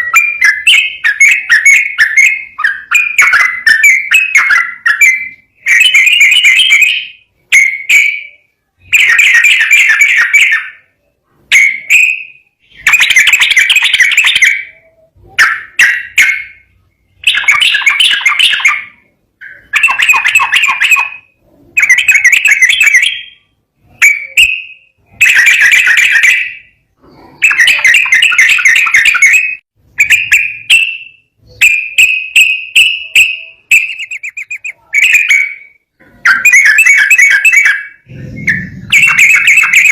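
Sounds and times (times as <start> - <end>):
bulbul singing bubbling phrases: 33.0 - 35.4.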